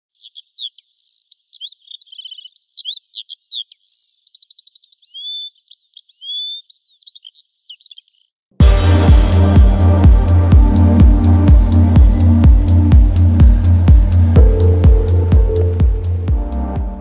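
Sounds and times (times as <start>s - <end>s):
bird song: 0.0s - 8.4s.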